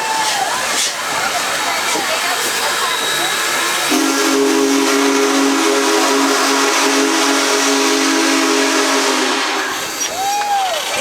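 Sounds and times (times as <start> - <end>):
steam hissing: 0.0 - 11.0
steam whistle blowing: 2.7 - 11.0.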